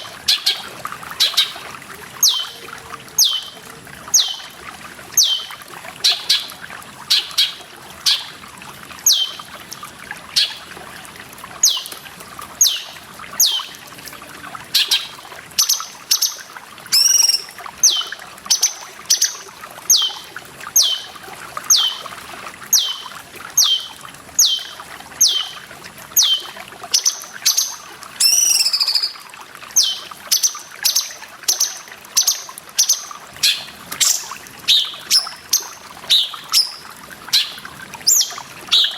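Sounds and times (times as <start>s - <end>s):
water trickling: 0.0s - 38.9s
bird whistling song: 1.2s - 1.6s, 2.2s - 2.6s, 3.2s - 4.5s, 5.2s - 6.5s, 9.0s - 9.4s, 11.6s - 11.9s, 12.6s - 13.7s, 14.8s - 21.1s, 21.7s - 22.1s, 22.7s - 25.6s, 26.2s - 29.2s, 29.8s - 38.9s.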